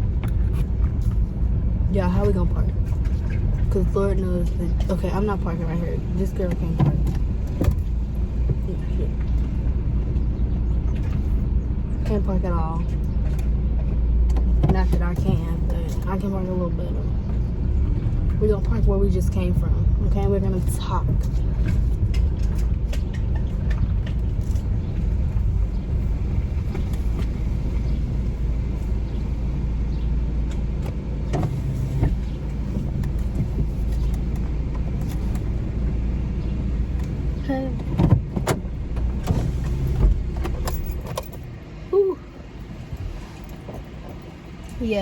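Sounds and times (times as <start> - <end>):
engine and road rumble: 0.0 - 45.0
sharp clicks and knocks: 21.2 - 25.5.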